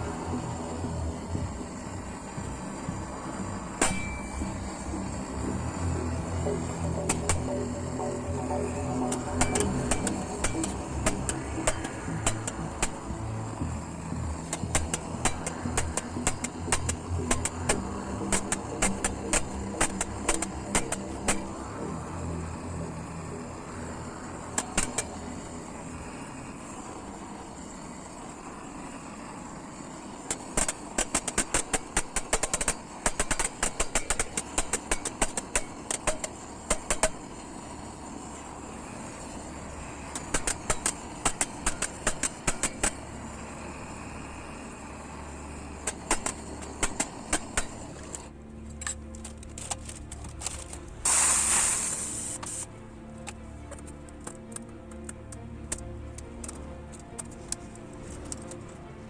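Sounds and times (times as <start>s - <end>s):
steady rushing noise: 0.0s - 59.0s
hammer striking sheet metal: 3.8s - 4.3s, 9.2s - 13.0s
loud hiss: 51.0s - 52.7s.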